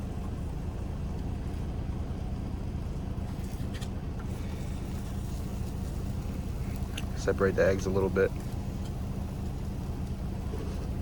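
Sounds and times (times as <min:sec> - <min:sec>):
truck diesel engine idling: 0:04.0 - 0:11.0.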